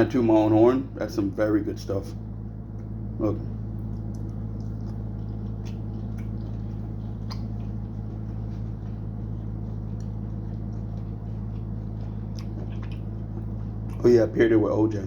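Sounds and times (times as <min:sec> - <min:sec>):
steady low hum: 0:00.0 - 0:15.0
person chewing food: 0:02.4 - 0:14.1
soft wet mouth clicks: 0:03.8 - 0:06.6, 0:07.2 - 0:07.6.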